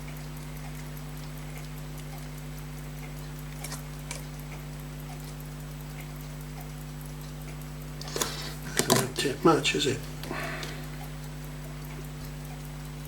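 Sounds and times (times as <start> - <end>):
small clicks: 0.0 - 9.3
electrical hum: 0.0 - 13.0.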